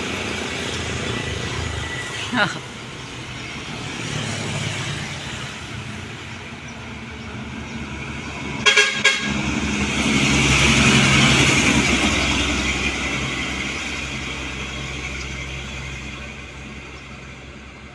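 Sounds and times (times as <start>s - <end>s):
vehicle passing by: 0.0s - 8.6s
vehicle horn toots: 8.6s - 9.4s.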